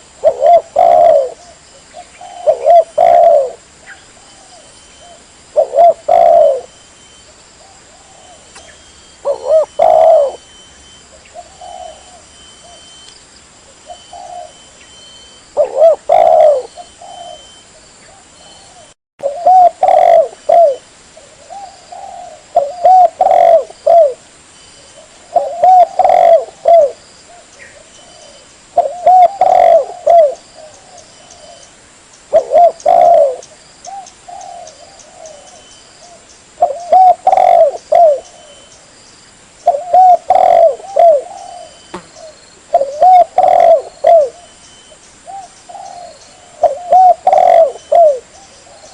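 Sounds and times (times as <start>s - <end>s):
dove cooing: 0.0s - 6.9s, 7.6s - 13.1s, 13.7s - 24.2s, 24.8s - 31.7s, 32.3s - 38.7s, 39.6s - 44.6s, 45.2s - 48.9s.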